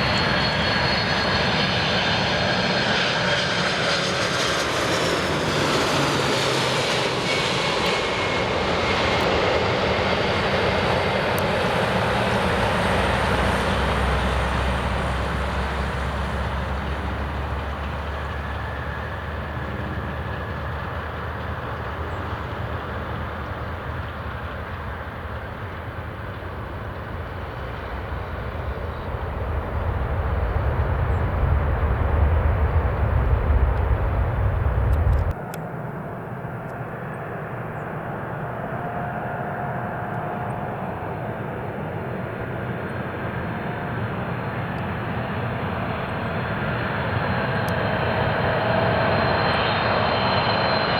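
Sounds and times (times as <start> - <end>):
jet engines passing with whine: 0.0 - 50.9
deep rumble: 26.5 - 35.4.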